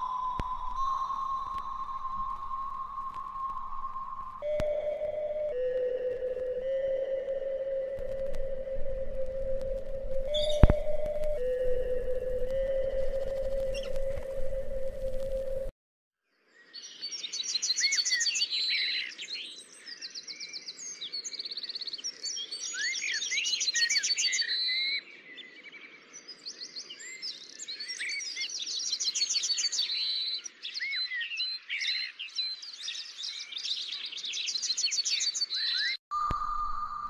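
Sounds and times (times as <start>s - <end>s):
steady tone: 0.0s - 15.7s
songbirds singing trills: 10.2s - 14.1s, 16.3s - 37.0s.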